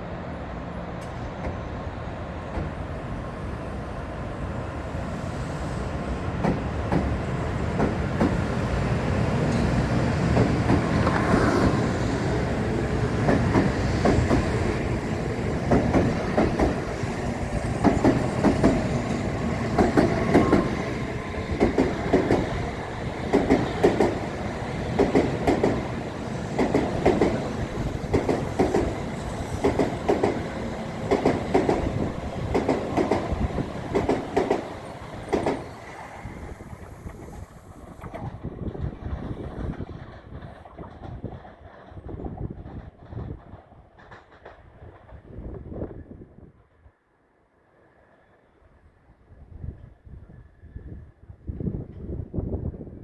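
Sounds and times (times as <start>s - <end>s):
train rumble: 0.0s - 45.5s
train wheels clacking: 15.6s - 41.9s.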